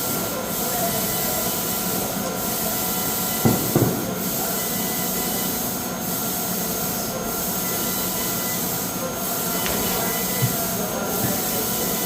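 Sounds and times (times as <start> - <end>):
hissing machine noise: 0.0 - 12.0
sharp knocks: 3.4 - 4.2.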